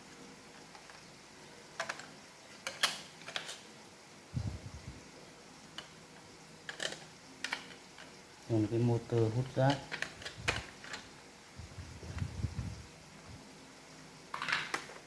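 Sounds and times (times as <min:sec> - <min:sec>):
plastic parts clicking: 0:01.8 - 0:03.6, 0:06.7 - 0:08.1, 0:09.1 - 0:11.1.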